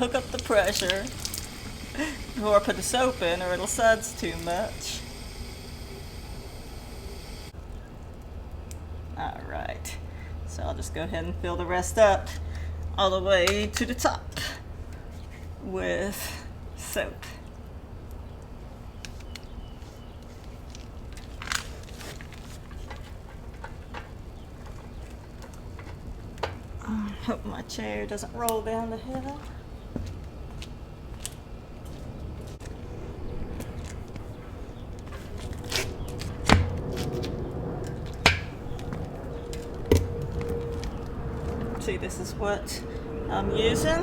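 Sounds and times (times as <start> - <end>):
faint steady hum: 0.0 - 44.0
steady low rumble: 25.7 - 44.0.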